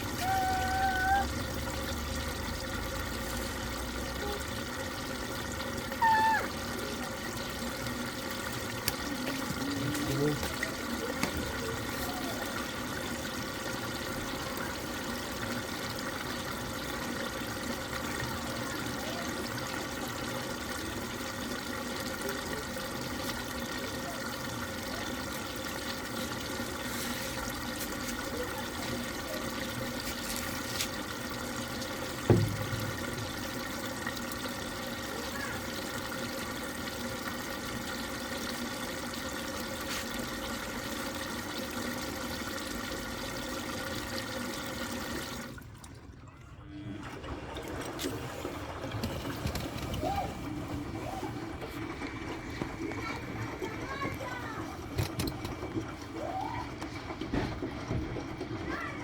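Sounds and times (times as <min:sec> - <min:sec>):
water running into washing machine: 0:00.0 - 0:59.0
thump: 0:32.3 - 0:33.0.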